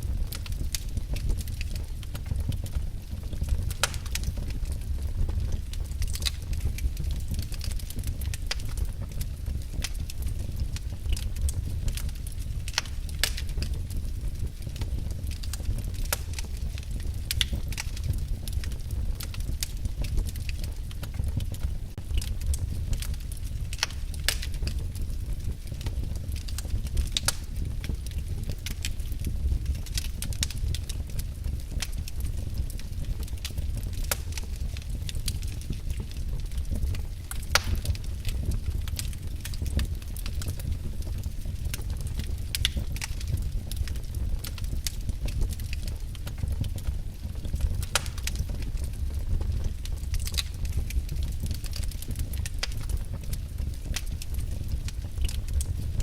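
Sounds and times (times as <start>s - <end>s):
fire crackling and popping: 0.0s - 56.0s
low rumble of fire: 0.0s - 56.0s.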